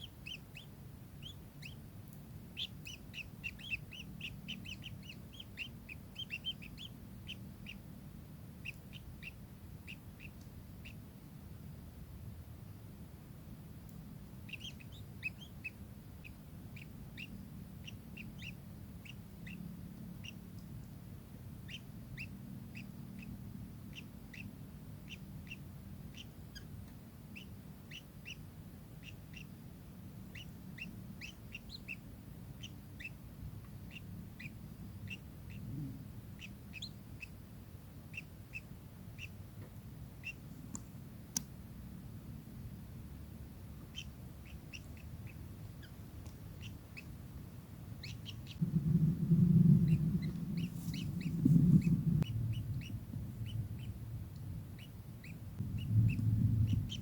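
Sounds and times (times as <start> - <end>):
low steady rumble: 0.0 - 57.0
faint clicks: 40.6 - 41.5.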